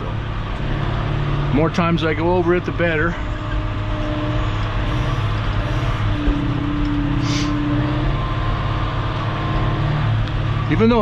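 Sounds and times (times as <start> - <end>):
brief hiss: 7.2 - 7.5.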